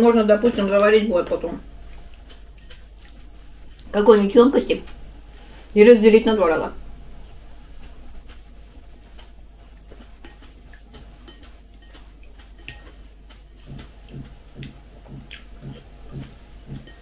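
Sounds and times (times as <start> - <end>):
person chewing porridge: 1.6 - 4.0, 4.8 - 5.7, 6.8 - 17.0.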